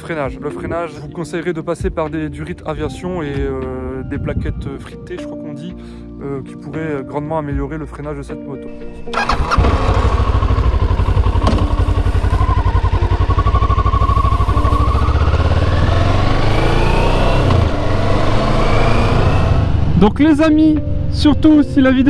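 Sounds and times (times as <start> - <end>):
motorcycle engine accelerating: 8.8 - 20.1.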